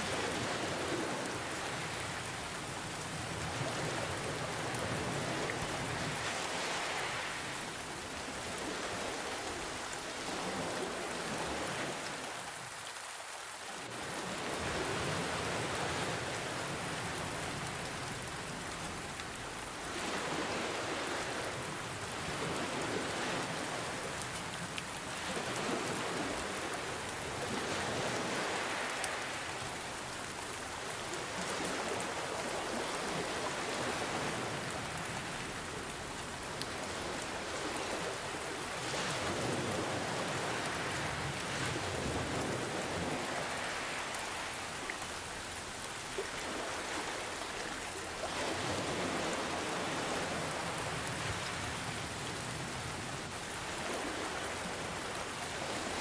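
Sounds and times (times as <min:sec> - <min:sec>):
ocean waves washing in: 0:00.0 - 0:12.6, 0:13.8 - 0:56.0
steady rain: 0:00.0 - 0:56.0.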